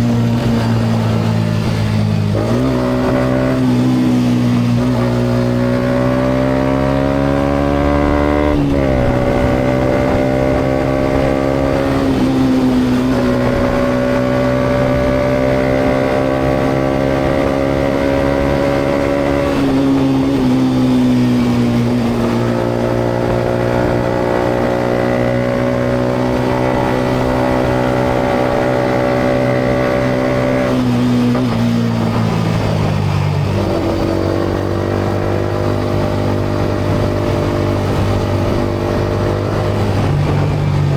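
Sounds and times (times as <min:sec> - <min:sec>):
motorcycle engine revving: 0:00.0 - 0:40.9
road and wind noise: 0:00.0 - 0:40.9.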